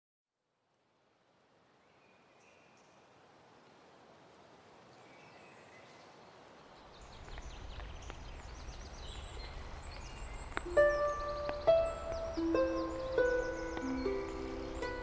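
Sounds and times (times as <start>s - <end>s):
hiss of rain: 0.5s - 15.0s
birds chirping: 4.8s - 15.0s
music notes: 10.6s - 15.0s.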